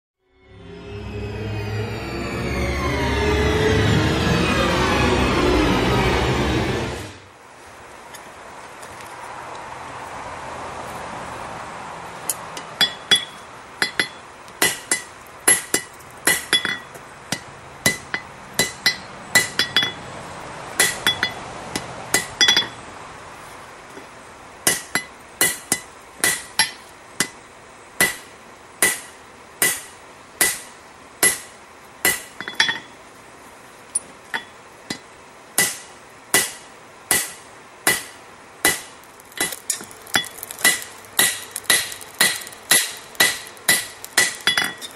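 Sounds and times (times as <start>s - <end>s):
hammer ringing on anvil: 12.8s - 20.0s, 20.8s - 21.4s, 22.1s - 22.8s, 32.1s - 32.9s.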